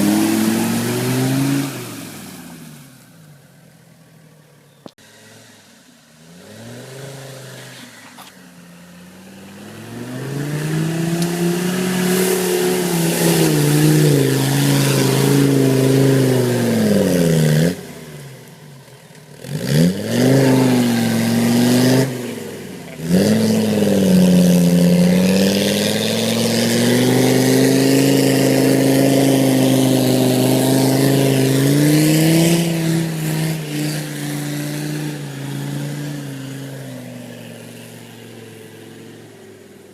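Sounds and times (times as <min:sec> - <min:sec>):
diesel engine revving: 0:00.0 - 0:03.5, 0:05.0 - 0:39.9.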